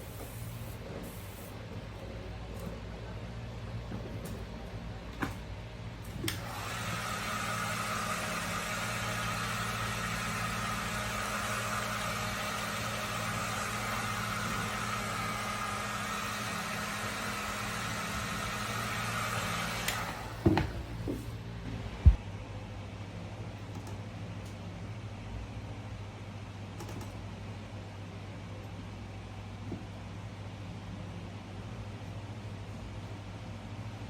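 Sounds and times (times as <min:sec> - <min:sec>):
small electric blower whirring: 0:06.2 - 0:21.2.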